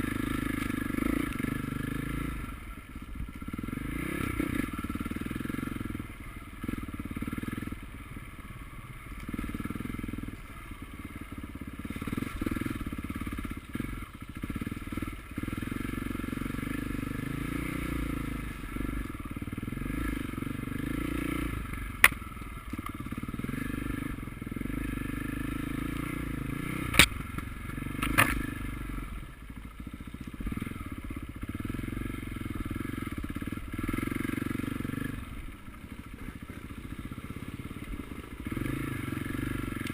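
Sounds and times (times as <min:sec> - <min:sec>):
motocross bike engines revving: 0:31.4 - 0:39.9.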